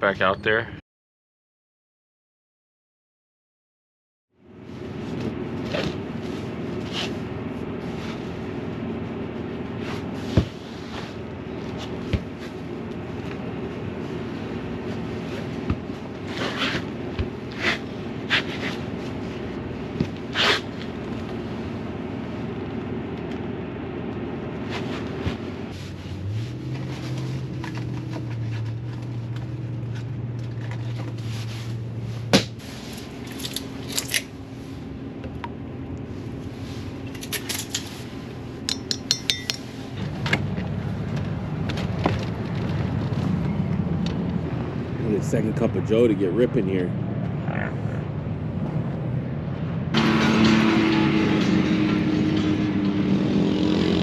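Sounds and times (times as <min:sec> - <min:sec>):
low steady drone: 0:04.4 - 0:54.0
steady mechanical hum: 0:04.4 - 0:54.0
knocks and clicks: 0:38.7 - 0:39.6.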